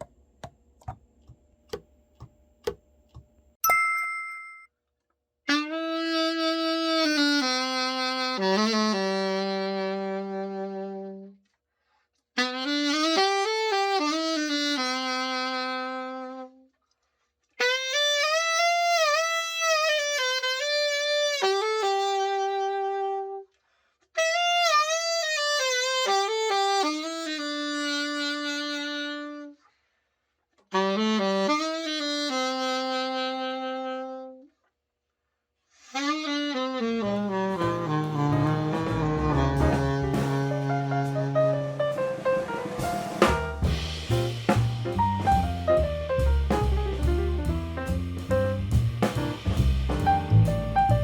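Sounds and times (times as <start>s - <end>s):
alto saxophone melody: 5.5s - 11.5s, 12.4s - 16.7s, 17.6s - 23.6s, 24.2s - 29.7s, 30.7s - 34.5s, 35.8s - 51.0s
music with lower notes: 37.0s - 51.0s.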